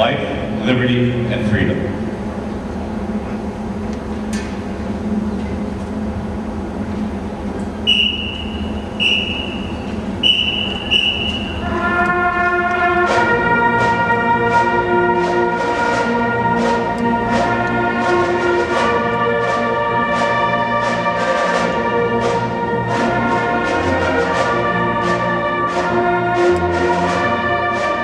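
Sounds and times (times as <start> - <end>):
brass chords: 7.8 - 28.0
marching band playing: 7.8 - 28.0.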